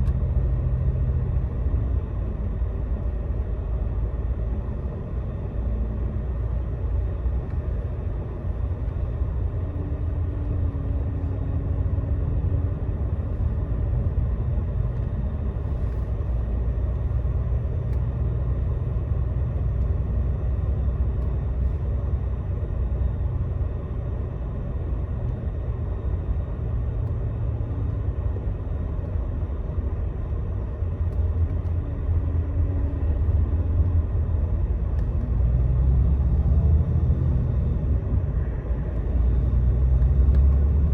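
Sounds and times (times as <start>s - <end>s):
bus engine and road noise: 0.0s - 40.9s.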